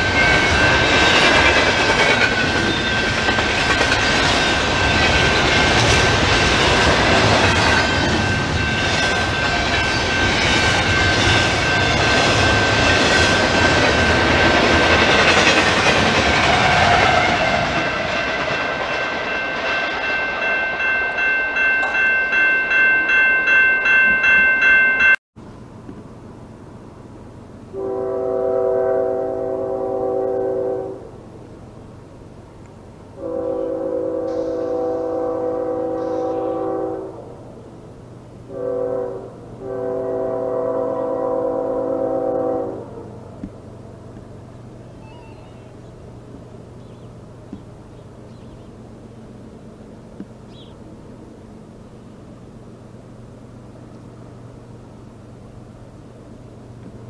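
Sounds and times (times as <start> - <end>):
freight train wheels clattering: 0.0 - 25.2
high ringing tone: 18.9 - 25.2
distant diesel locomotive horn: 27.7 - 31.2, 33.2 - 37.5, 38.5 - 43.5.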